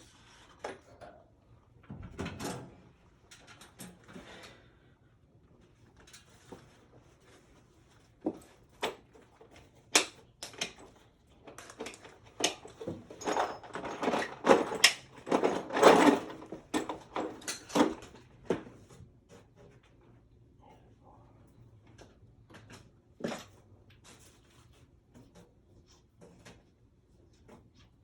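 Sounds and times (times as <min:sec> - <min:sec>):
tools clanking and clattering: 0:08.3 - 0:18.8.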